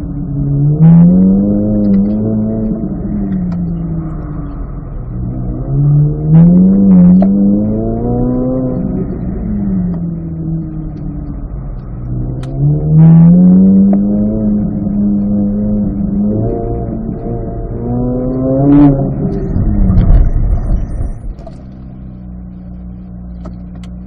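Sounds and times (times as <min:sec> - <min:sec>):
car engine revving from inside cabin: 0:00.0 - 0:24.0.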